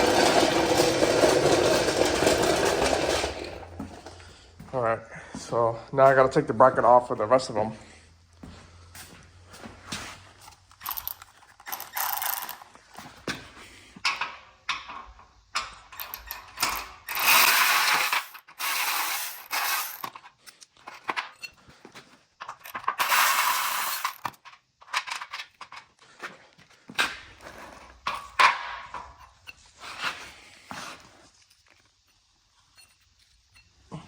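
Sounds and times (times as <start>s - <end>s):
metal hardware clinking: 14.1s - 20.2s
hand ratchet clicking: 15.6s - 20.1s.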